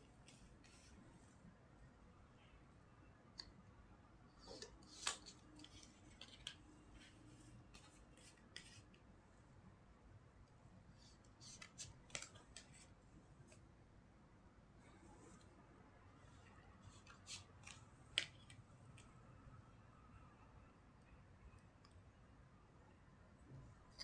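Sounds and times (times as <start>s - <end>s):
cards shuffled by hand: 4.5s - 8.9s, 11.4s - 12.9s.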